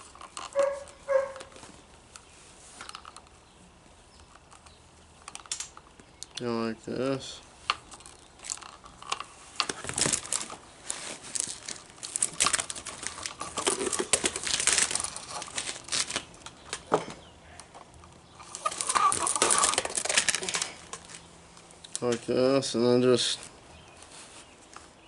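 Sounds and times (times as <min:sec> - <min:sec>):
plastic spool and line scraping: 0:00.0 - 0:03.4.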